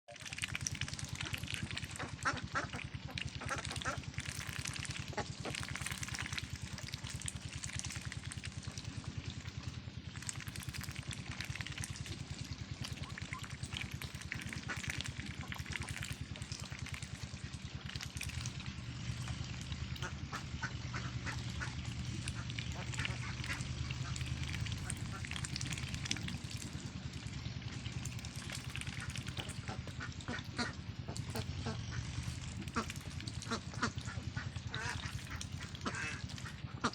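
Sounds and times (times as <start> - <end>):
steady low hum: 0.2 - 36.9
ducks quacking: 1.0 - 6.8, 14.0 - 36.9.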